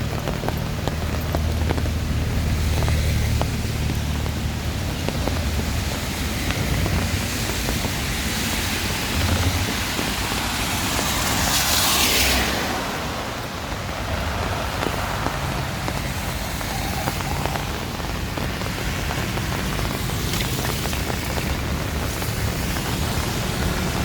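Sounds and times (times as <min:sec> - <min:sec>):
heavy rain: 0:00.0 - 0:24.0
wind rumbling on microphone: 0:00.0 - 0:24.0.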